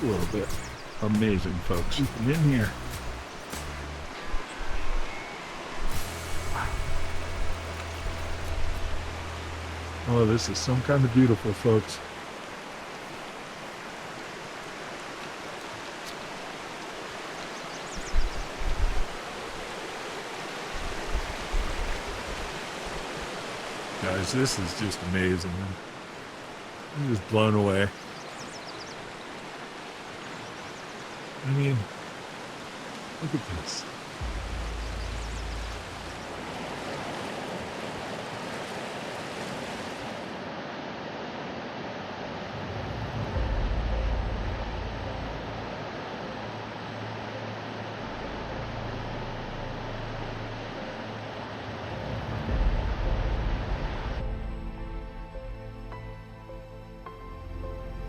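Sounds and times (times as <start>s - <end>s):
river rushing over rocks: 4.2s - 27.8s, 35.0s - 43.4s.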